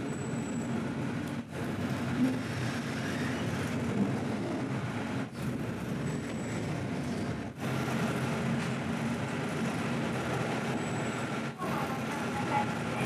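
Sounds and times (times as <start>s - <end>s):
railcar engine drone: 0.0s - 13.0s
wheels rolling on track: 0.0s - 13.0s.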